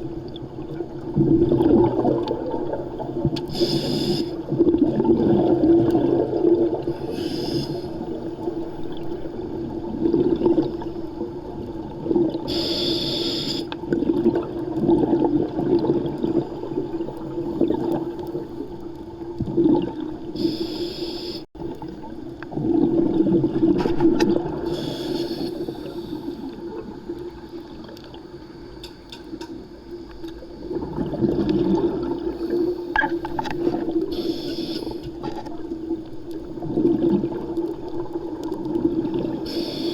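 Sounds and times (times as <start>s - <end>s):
exhaled scuba bubbles: 0.0s - 39.9s
gurgling water: 0.0s - 39.9s
underwater low hum: 0.0s - 39.9s.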